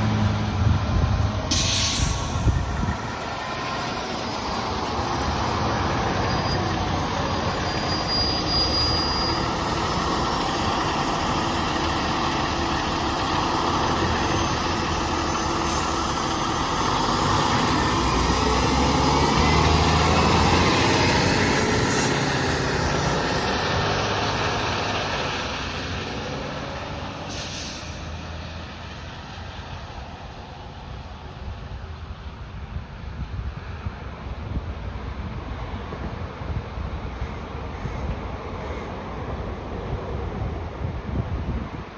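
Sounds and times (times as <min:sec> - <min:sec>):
fire engine diesel engine: 0:00.0 - 0:41.9
brief hiss: 0:01.5 - 0:02.8, 0:27.3 - 0:28.0.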